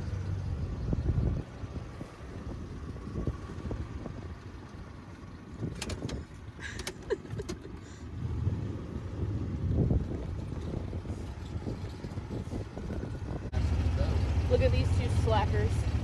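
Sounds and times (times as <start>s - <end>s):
vehicle rumbling over rough ground: 0.0s - 16.0s
sharp clicks and rattles: 5.5s - 7.9s.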